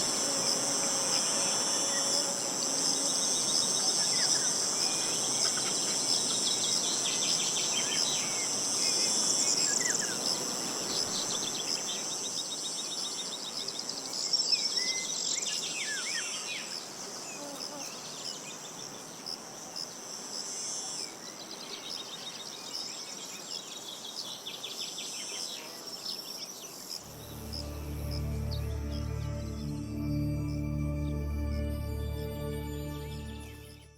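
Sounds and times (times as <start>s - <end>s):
insects chorus: 0.0s - 31.7s
soft music: 27.0s - 33.9s.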